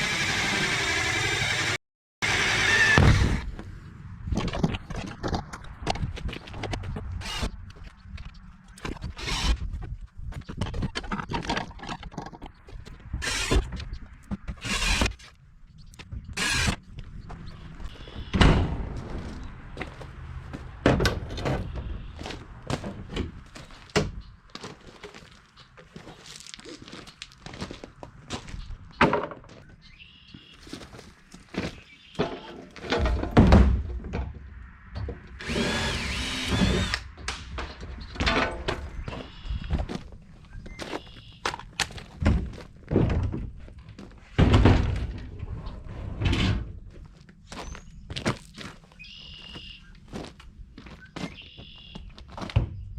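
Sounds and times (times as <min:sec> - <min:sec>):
power drill whining: 0:00.0 - 0:03.4, 0:09.2 - 0:09.6, 0:13.2 - 0:13.7, 0:14.6 - 0:15.2, 0:16.4 - 0:16.8, 0:35.4 - 0:37.1
scrapes clatters and knocks: 0:07.8 - 0:14.7, 0:30.8 - 0:35.2, 0:37.1 - 0:47.6
knocks and thunks: 0:18.3 - 0:19.4, 0:20.8 - 0:21.9, 0:32.2 - 0:34.4, 0:42.2 - 0:43.7, 0:44.3 - 0:45.3.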